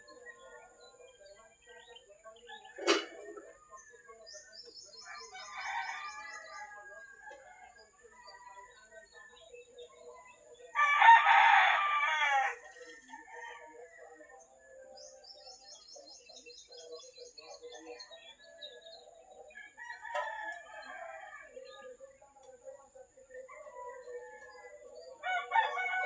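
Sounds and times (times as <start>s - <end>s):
small birds chirping: 0.0s - 26.0s
distant rooster crowing: 5.0s - 8.8s, 10.8s - 13.9s, 23.6s - 26.0s
rooster crowing: 10.8s - 12.7s, 25.2s - 26.0s.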